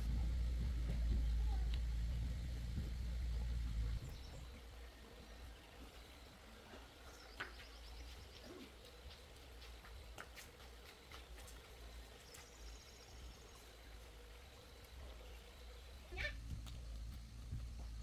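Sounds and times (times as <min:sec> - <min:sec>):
low rumble: 0:00.0 - 0:04.5
faint scattered clicks: 0:00.0 - 0:04.6, 0:06.0 - 0:18.0.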